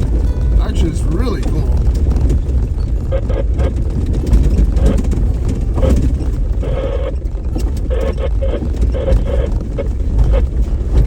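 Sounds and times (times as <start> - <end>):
knocks and rattles: 0.0 - 7.9
vehicle engine and road rumble: 0.0 - 11.0.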